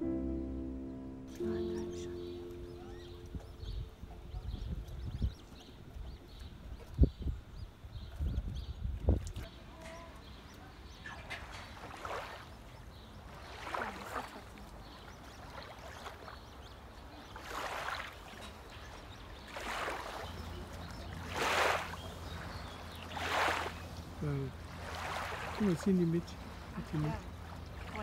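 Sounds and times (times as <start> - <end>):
low steady hum: 0.0 - 17.3
water slapping against boat: 11.0 - 28.0.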